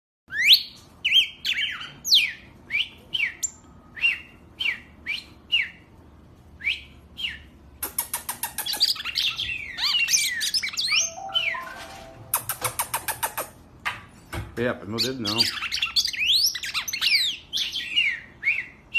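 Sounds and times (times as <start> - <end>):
bird chattering song: 6.8 - 11.7, 12.3 - 13.6, 14.9 - 18.9.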